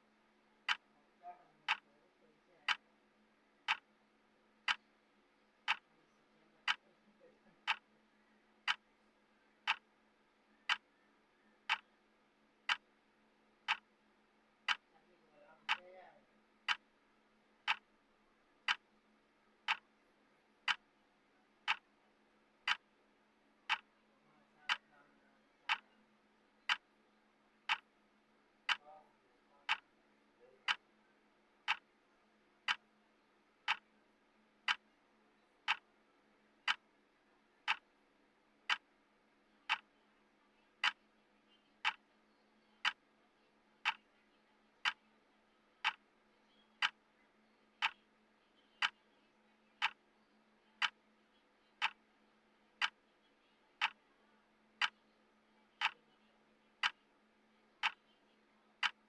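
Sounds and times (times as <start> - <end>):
timer clock ticking: 0.6 - 0.9, 1.6 - 1.9, 2.6 - 2.9, 3.6 - 4.0, 4.6 - 4.9, 5.6 - 6.0, 6.6 - 6.8, 7.6 - 7.9, 8.6 - 10.0, 10.6 - 11.0, 11.6 - 12.0, 12.6 - 14.0, 14.6 - 15.0, 15.6 - 16.0, 16.6 - 17.0, 17.6 - 18.0, 18.6 - 18.9, 19.5 - 20.0, 20.6 - 21.0, 21.6 - 23.0, 23.6 - 24.0, 24.6 - 25.0, 25.6 - 26.0, 26.6 - 27.0, 27.6 - 28.0, 28.6 - 28.9, 29.6 - 30.0, 30.6 - 30.9, 31.6 - 32.0, 32.6 - 34.0, 34.6 - 35.0, 35.6 - 38.0, 38.6 - 39.9, 40.8 - 41.1, 41.8 - 42.1, 42.8 - 43.2, 43.8 - 44.1, 44.8 - 45.2, 45.8 - 46.2, 46.8 - 47.1, 47.8 - 48.2, 48.8 - 49.1, 49.8 - 50.2, 50.8 - 51.2, 51.8 - 52.2, 52.8 - 53.1, 53.7 - 54.1, 54.8 - 56.2, 56.8 - 57.2, 57.8 - 58.2, 58.8 - 59.0.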